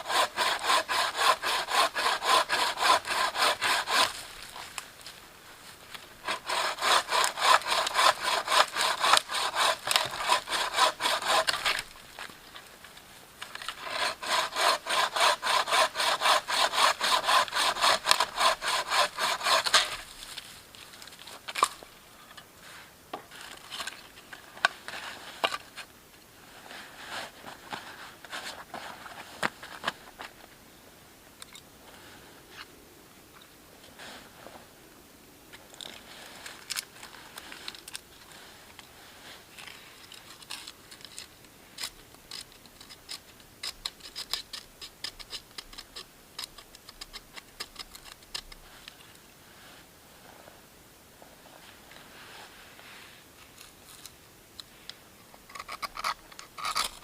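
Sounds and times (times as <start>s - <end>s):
hand saw cutting wood: 0.0s - 4.3s, 6.2s - 11.9s, 13.7s - 20.1s.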